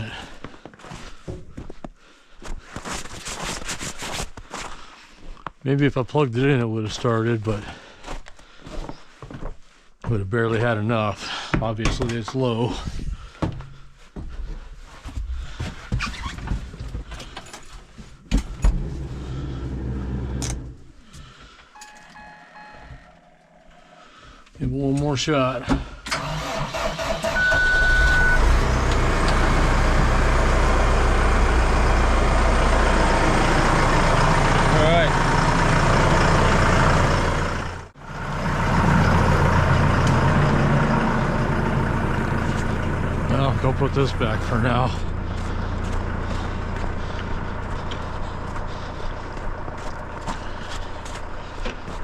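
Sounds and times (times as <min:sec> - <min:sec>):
starter motor cranking diesel engine: 0:18.4 - 0:20.9, 0:26.0 - 0:52.0.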